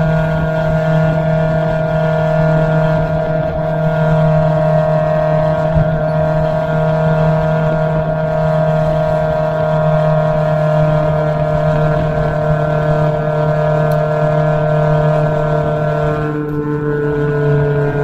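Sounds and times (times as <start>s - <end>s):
race car engine running hard: 0.0s - 18.0s
wind rumble on microphone: 0.0s - 18.0s.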